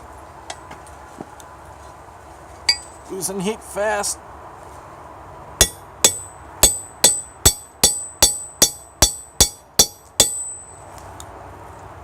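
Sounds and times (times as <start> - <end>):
hammer striking metal on anvil: 5.6 - 10.8.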